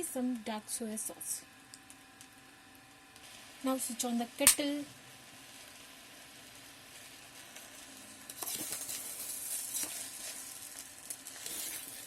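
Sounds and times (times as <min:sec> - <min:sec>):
noodles sizzling in a pot: 0:00.0 - 0:12.0
spoon stirring and clicking on pot: 0:08.2 - 0:10.4.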